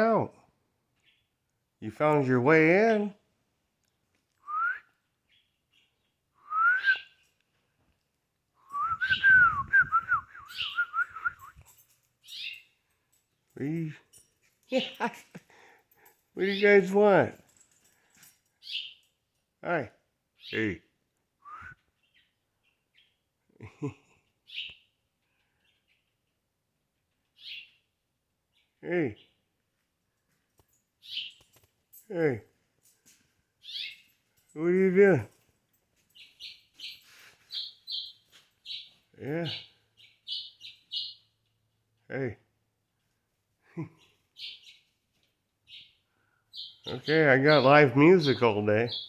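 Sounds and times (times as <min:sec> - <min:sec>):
small birds chirping: 0:00.9 - 0:02.2, 0:04.9 - 0:07.8, 0:08.7 - 0:19.3, 0:20.3 - 0:49.0
person whistling: 0:04.5 - 0:04.9, 0:06.4 - 0:07.1, 0:08.7 - 0:11.6, 0:21.4 - 0:21.8.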